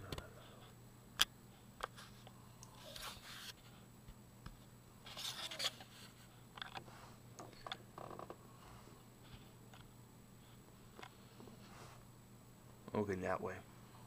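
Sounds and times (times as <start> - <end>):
steady low hum: 0.0 - 14.0
rubbing and scraping: 5.1 - 7.0.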